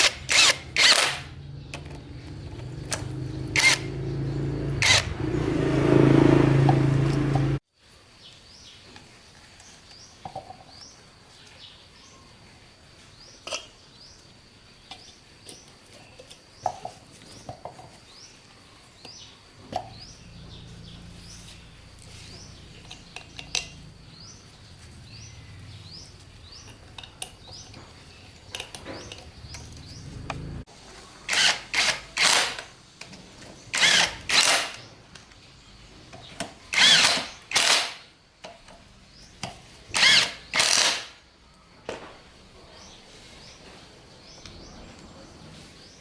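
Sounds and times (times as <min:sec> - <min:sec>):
power tool bursts: 0:00.0 - 0:01.4, 0:02.4 - 0:07.6, 0:31.3 - 0:32.7, 0:33.7 - 0:34.9, 0:36.7 - 0:38.1, 0:39.9 - 0:41.2.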